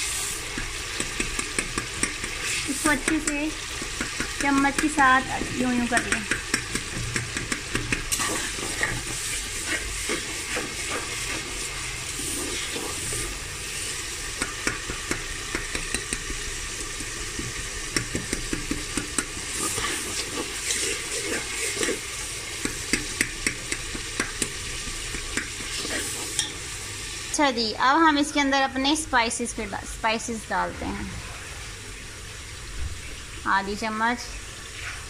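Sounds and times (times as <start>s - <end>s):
onions sizzling in hot oil: 0.0s - 35.0s
metal spatula scraping a pot: 8.1s - 11.6s, 19.5s - 22.2s.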